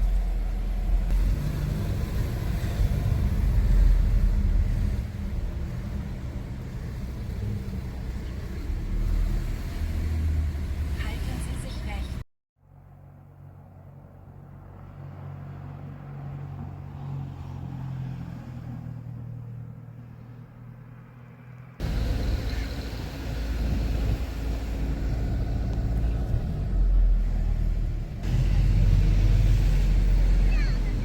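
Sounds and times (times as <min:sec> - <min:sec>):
car engine drone: 0:00.0 - 0:12.2, 0:21.6 - 0:31.0
road and wind rumble: 0:00.0 - 0:31.0.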